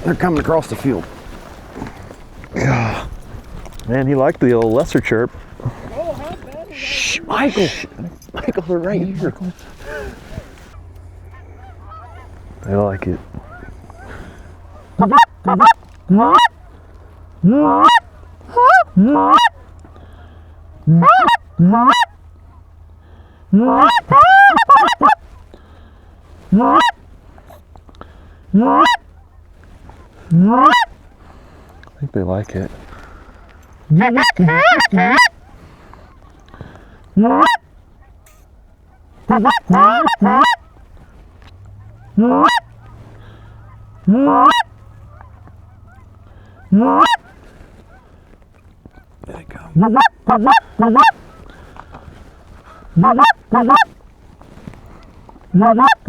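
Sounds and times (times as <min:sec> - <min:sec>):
goose call honks: 0:00.0 - 0:56.0.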